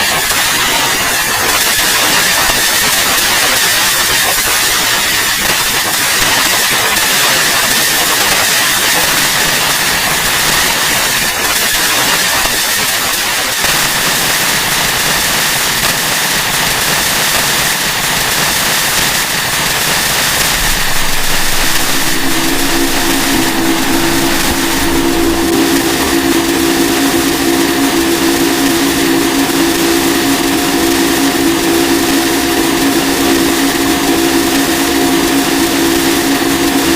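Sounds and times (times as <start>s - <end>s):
harsh static noise: 18.9s - 31.0s
steady high whine: 19.8s - 33.0s
low drone: 20.0s - 31.5s.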